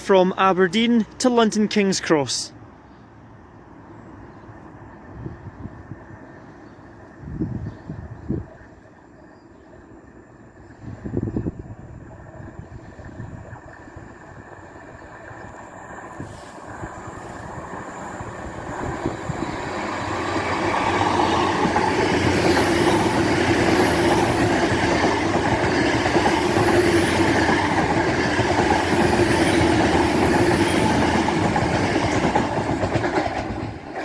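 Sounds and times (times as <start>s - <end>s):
express train passing: 0.0s - 34.0s.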